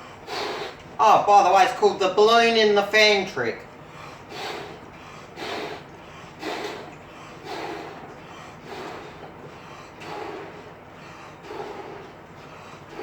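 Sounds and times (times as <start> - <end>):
puffs of breath into balloon: 0.0 - 0.8, 4.0 - 13.0.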